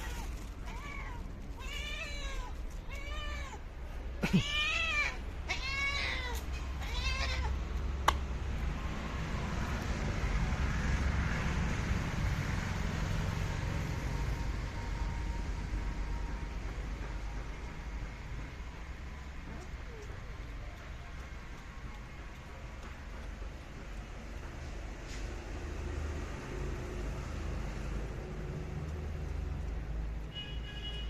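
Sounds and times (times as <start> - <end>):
cat meowing: 0.0 - 7.6.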